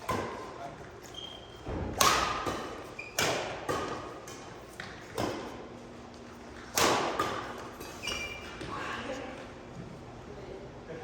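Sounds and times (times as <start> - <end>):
racket hitting shuttlecock: 0.0 - 0.5, 1.7 - 5.7, 6.6 - 8.0
shoes squeaking on court floor: 0.2 - 1.7, 2.4 - 5.6, 6.3 - 9.2.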